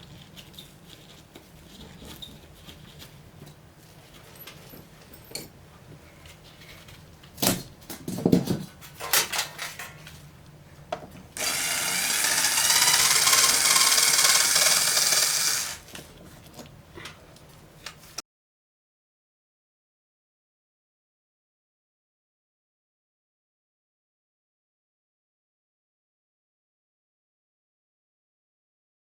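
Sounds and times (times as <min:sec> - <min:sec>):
power drill running: 0:11.4 - 0:15.9.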